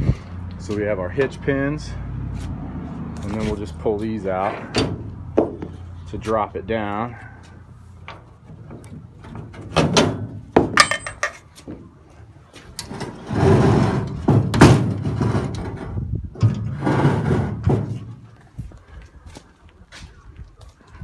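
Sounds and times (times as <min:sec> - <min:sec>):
metal clanking: 0:08.6 - 0:11.5
metal ramp scraping and sliding: 0:12.8 - 0:18.2.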